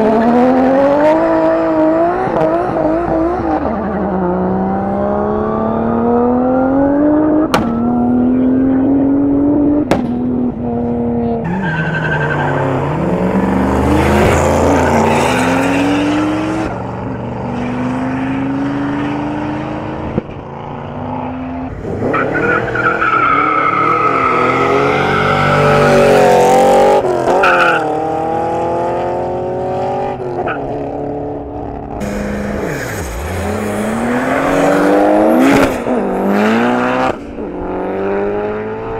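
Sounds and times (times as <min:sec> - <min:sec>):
racing cars accelerating: 0:00.0 - 0:38.9
tyre squeal: 0:11.4 - 0:13.0, 0:14.4 - 0:16.6.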